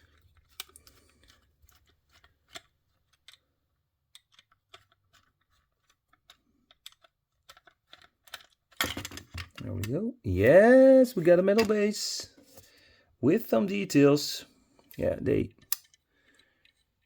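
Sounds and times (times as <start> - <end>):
small clicks and taps of handling: 0.0 - 9.9, 15.6 - 17.0.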